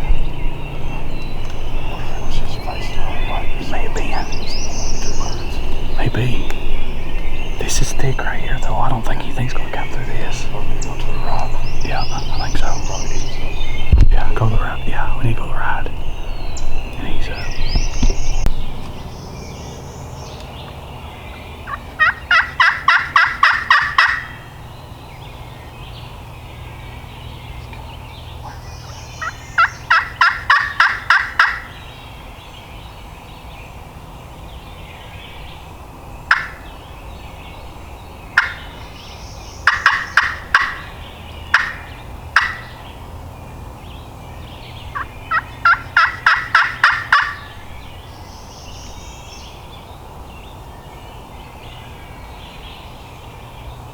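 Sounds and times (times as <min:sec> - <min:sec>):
turkey clucks: 0:00.8 - 0:16.0, 0:21.7 - 0:24.4, 0:28.4 - 0:31.7, 0:36.3 - 0:36.8, 0:38.4 - 0:38.8, 0:39.6 - 0:43.0, 0:44.9 - 0:47.6
turkey yelping: 0:21.7 - 0:24.5, 0:28.5 - 0:31.8, 0:36.3 - 0:36.8, 0:38.4 - 0:38.8, 0:39.6 - 0:42.9, 0:44.9 - 0:47.6.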